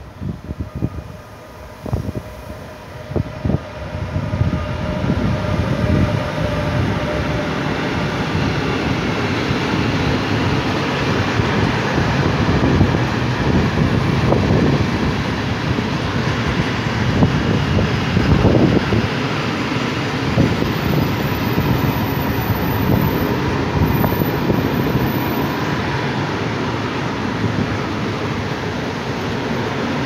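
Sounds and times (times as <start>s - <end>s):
freight train wheels rumbling: 0.0s - 30.0s.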